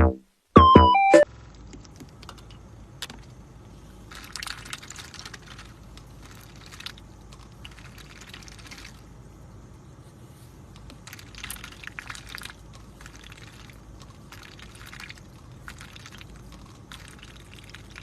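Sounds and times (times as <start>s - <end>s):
electronic music notes: 0.0s - 1.3s
faint clicking and tapping: 1.4s - 9.0s, 10.4s - 18.0s.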